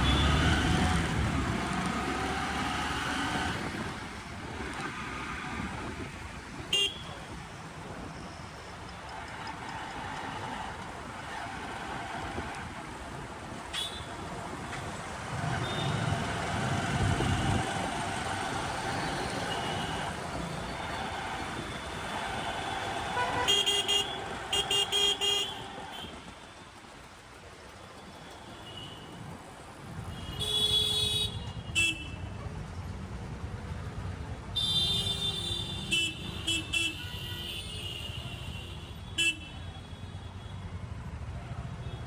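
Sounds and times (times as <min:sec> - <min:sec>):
vehicle horns tooting: 0:00.0 - 0:00.9, 0:06.7 - 0:07.2, 0:21.8 - 0:26.3, 0:30.1 - 0:32.2, 0:34.6 - 0:40.7
traffic engines rumbling: 0:00.0 - 0:42.0.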